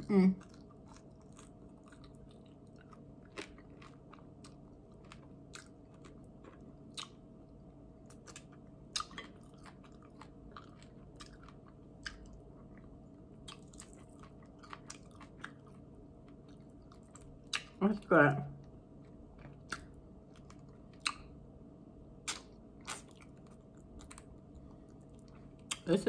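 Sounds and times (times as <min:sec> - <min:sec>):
faint steady hum: 0:00.0 - 0:26.0
chewing mouth clicks and smacks: 0:08.1 - 0:15.7, 0:16.4 - 0:17.8, 0:19.0 - 0:21.3, 0:22.2 - 0:25.9.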